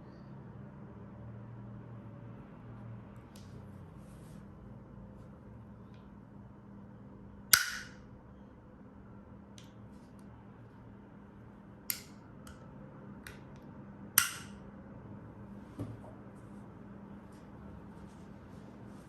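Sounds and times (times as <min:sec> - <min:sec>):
lighter clicks: 0:14.2 - 0:14.6.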